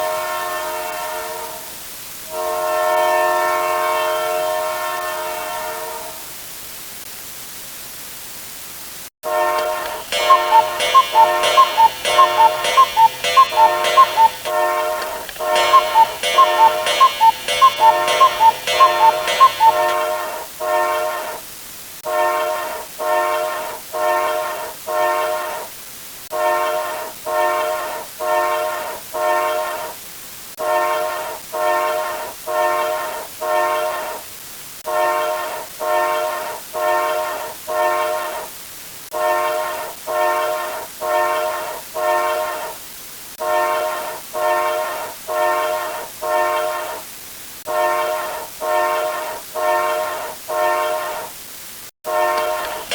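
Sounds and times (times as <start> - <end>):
horn chord blasts: 9.2 - 21.4, 52.1 - 52.9
bright wavering pitched sound: 9.8 - 20.3.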